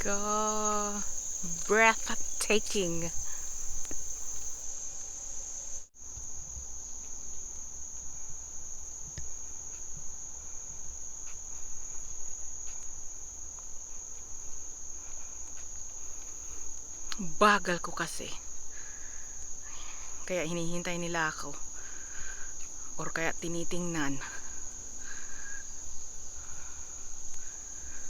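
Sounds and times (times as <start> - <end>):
insects high-pitched shrill drone: 0.0 - 5.9.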